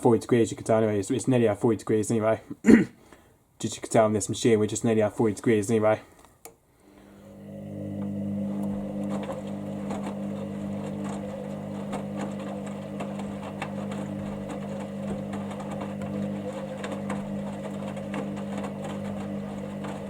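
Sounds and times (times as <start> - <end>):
washing machine drum motor hum: 7.0 - 20.0.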